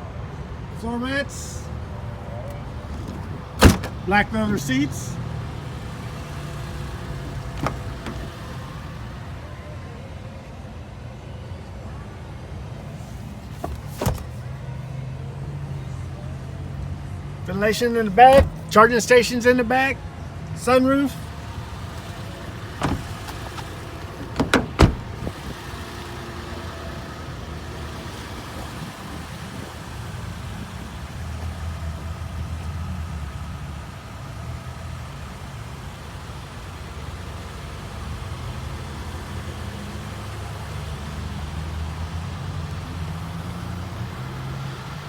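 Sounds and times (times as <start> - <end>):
engine idling low rumble: 2.3 - 10.2, 21.1 - 45.0.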